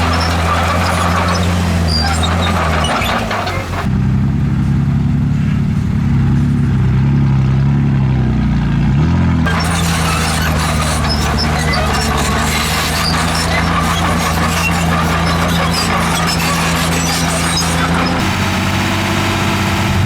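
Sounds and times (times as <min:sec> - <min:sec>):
machinery squeaks and rattles: 0:00.0 - 0:03.9, 0:09.5 - 0:18.4
heavy diesel engine drone: 0:00.0 - 0:20.0.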